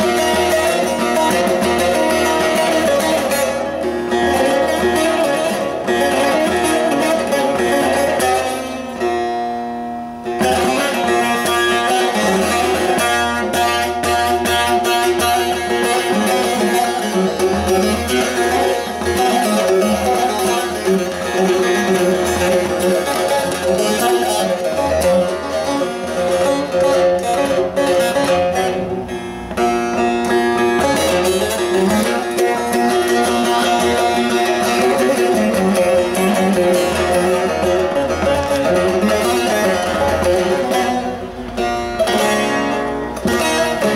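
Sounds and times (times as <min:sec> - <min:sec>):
saz rapidly plucked: 0:10.2 - 0:43.9.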